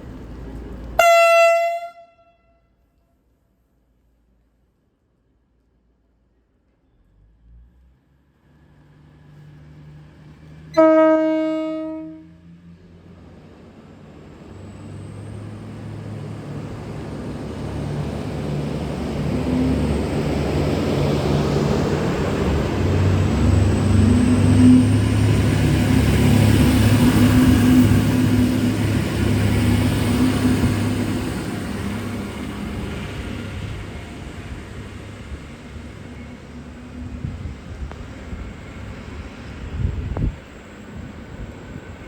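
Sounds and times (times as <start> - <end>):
diesel engine hum and rail noise: 0.0 - 42.0
train horn blast: 1.0 - 2.7, 10.7 - 12.6.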